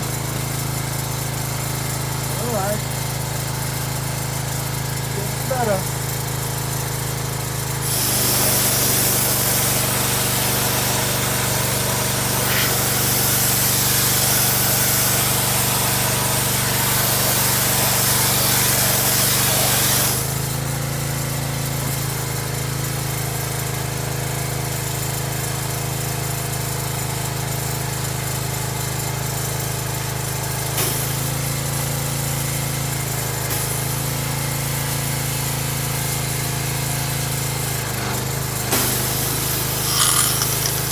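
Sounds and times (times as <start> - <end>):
loud hissing rush: 12.3 - 13.7.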